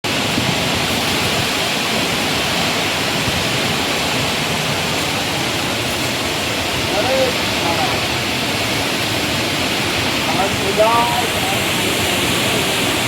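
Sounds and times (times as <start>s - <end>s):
strong wind blowing: 0.0s - 13.0s.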